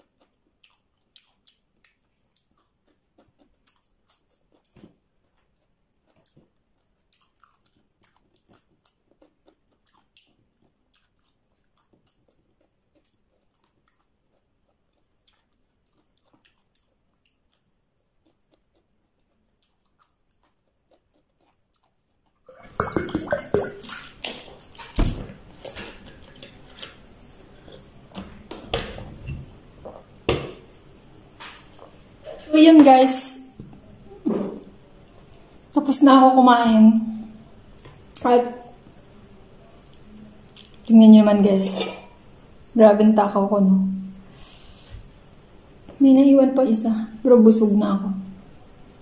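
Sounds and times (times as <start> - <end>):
person chewing and biting: 0.0 - 25.0.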